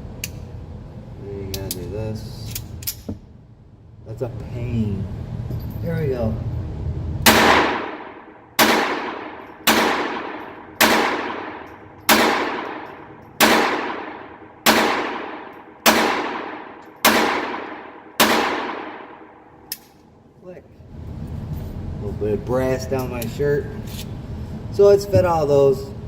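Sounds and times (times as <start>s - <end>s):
pistol shots ringing out: 7.2s - 19.4s.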